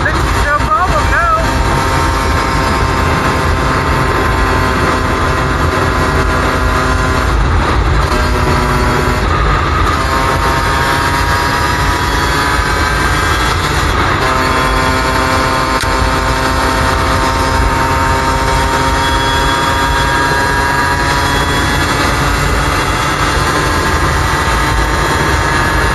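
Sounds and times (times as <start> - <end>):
two-stroke dirt bike engine running: 0.0 - 25.9.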